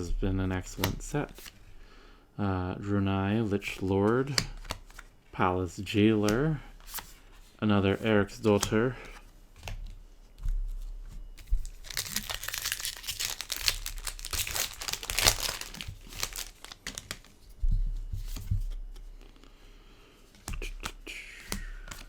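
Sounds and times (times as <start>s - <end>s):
foil wrapper crinkling and tearing: 11.4s - 17.4s.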